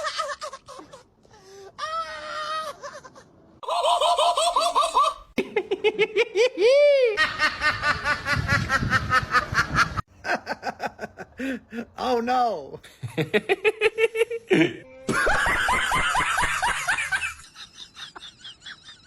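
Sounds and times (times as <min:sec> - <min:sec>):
laughter-like vocal sounds: 0:02.6 - 0:11.8, 0:12.9 - 0:19.0.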